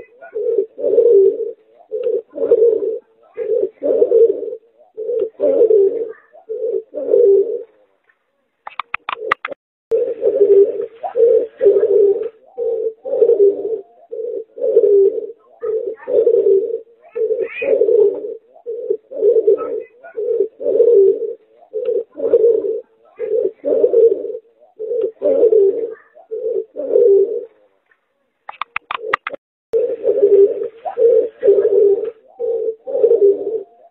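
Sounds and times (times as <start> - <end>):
dove cooing: 0.0 - 8.0, 8.7 - 27.9, 28.5 - 33.9
sharp clicks: 8.6 - 9.6, 28.5 - 29.4.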